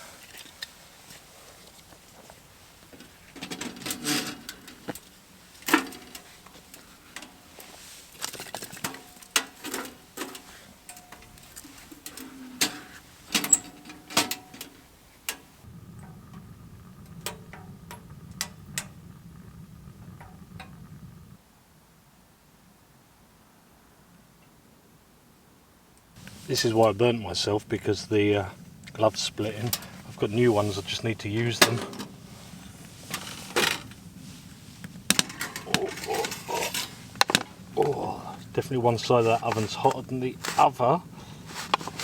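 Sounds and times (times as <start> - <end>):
low steady hum: 0.0 - 21.6, 26.0 - 42.0
stove door and wood clanking: 8.4 - 19.2
light ticks: 15.3 - 21.4.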